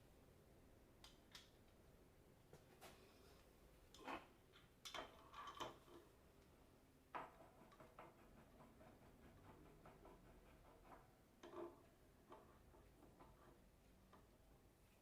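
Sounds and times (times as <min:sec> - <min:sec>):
faint metallic clicks and knocks: 0:03.9 - 0:08.2.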